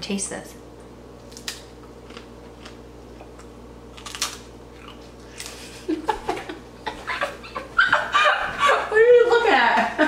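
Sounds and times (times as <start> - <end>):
person chewing crunchy chip: 1.3 - 5.7.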